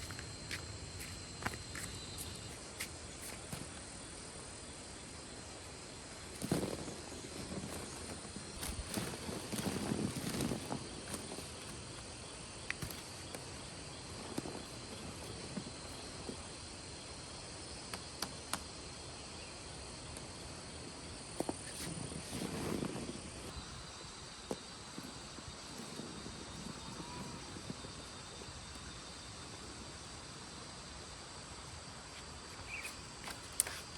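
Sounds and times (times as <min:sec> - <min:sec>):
insects trilling: 0:00.0 - 0:33.9
rustle: 0:00.0 - 0:33.9.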